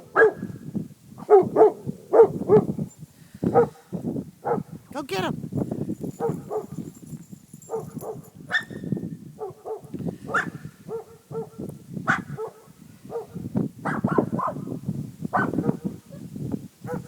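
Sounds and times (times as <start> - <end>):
dogs barking: 0.1 - 0.4, 1.2 - 2.7, 3.5 - 4.7, 9.4 - 14.6, 15.4 - 16.2.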